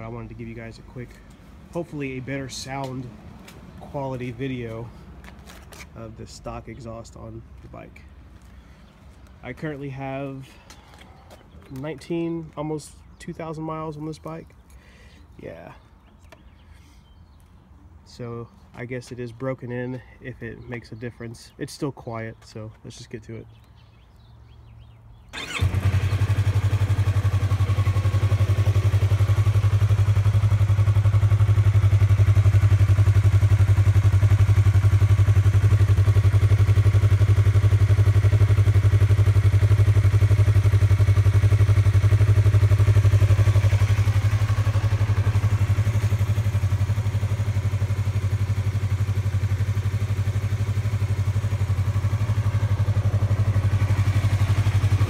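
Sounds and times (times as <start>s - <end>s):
motorcycle engine starting: 25.2s - 55.0s
motorcycle engine idling: 25.3s - 55.0s.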